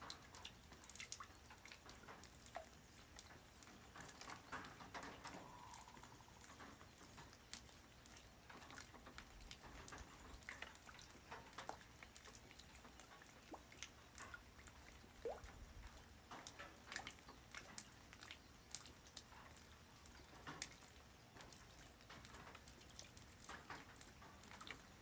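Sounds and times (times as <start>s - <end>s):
rain hiss: 0.0s - 13.3s
light rain pattering: 0.0s - 25.0s.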